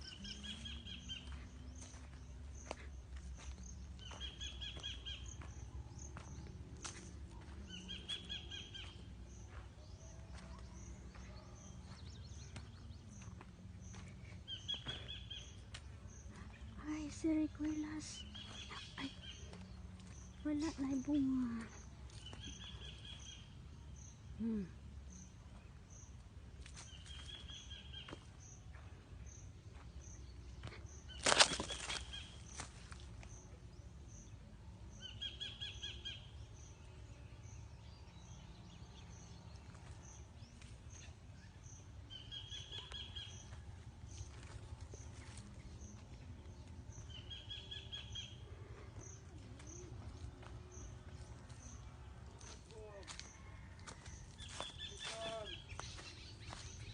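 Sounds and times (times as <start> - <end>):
bird calling: 4.0 - 5.5.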